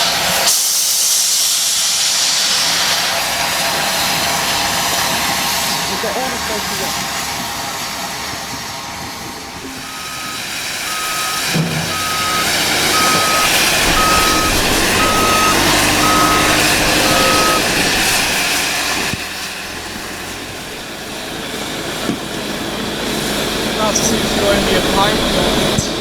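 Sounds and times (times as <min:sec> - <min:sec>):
loud rushing noise: 0:02.6 - 0:21.6
reversing alarm beeping: 0:09.6 - 0:19.1.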